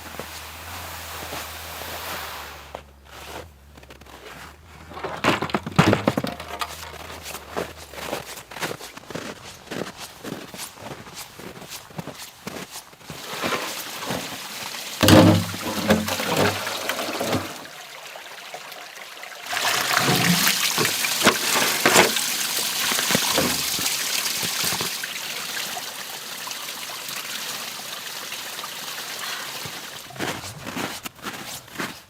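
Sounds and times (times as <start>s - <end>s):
knocks and handling sounds: 4.2s - 8.1s, 15.0s - 17.6s, 20.0s - 22.2s, 23.3s - 23.8s
water pouring and trickling: 13.1s - 30.4s.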